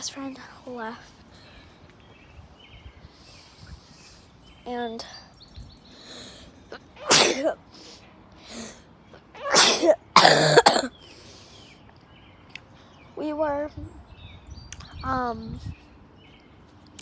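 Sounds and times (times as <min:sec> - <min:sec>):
breathy bursts from nose and mouth: 0:07.1 - 0:08.8.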